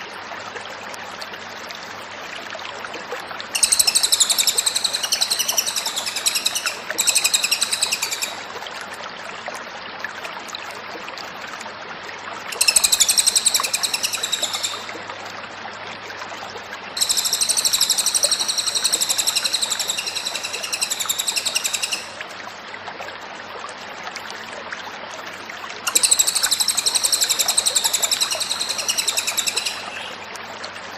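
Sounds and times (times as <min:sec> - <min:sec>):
songbird singing high-pitched phrases: 0:03.6 - 0:08.4, 0:12.5 - 0:14.9, 0:17.0 - 0:22.2, 0:25.9 - 0:30.3.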